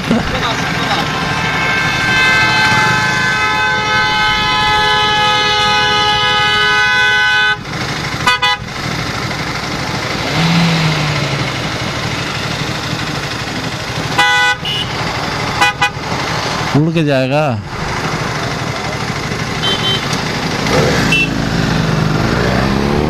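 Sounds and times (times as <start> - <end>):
road traffic noise: 0.0 - 23.0
short horn toots: 1.0 - 7.6, 19.6 - 21.4
vehicle horn held: 1.0 - 8.7, 14.0 - 16.0, 18.4 - 20.3.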